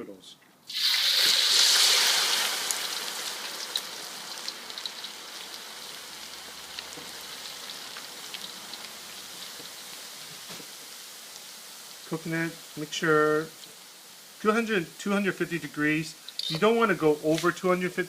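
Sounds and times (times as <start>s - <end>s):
oil popping: 0.7s - 9.8s
noodles sizzling in hot oil: 0.7s - 18.0s.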